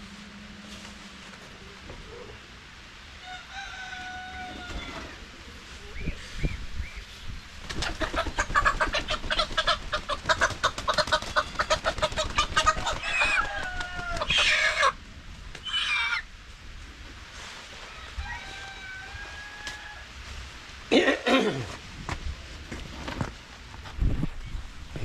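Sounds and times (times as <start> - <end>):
chickens cackling and squawking: 2.0 - 20.9.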